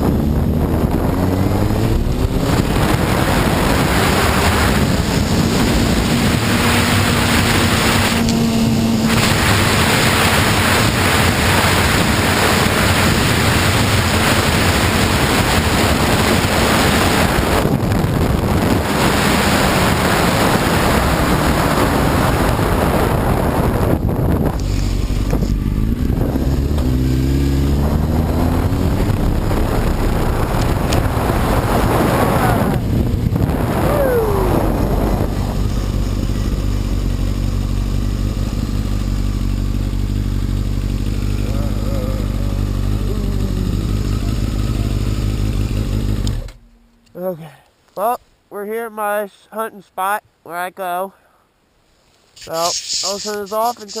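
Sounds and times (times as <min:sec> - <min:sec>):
wind rush over microphone: 0:00.0 - 0:36.6
sportbike engine at speed: 0:00.0 - 0:46.8.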